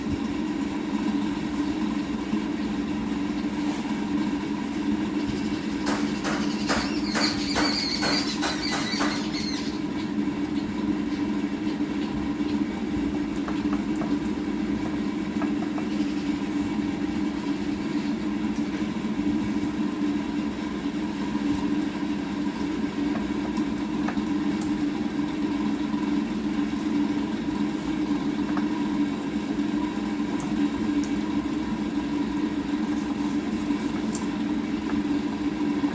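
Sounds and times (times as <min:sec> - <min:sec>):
rapid clicks with ringing tone: 0:05.7 - 0:09.7.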